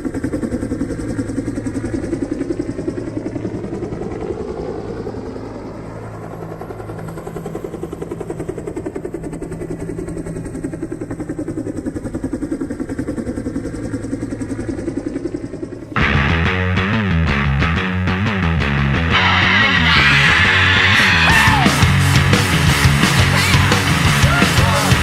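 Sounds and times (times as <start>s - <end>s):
helicopter engine hum: 0.0s - 25.0s
helicopter rotor pulsing: 0.0s - 25.0s.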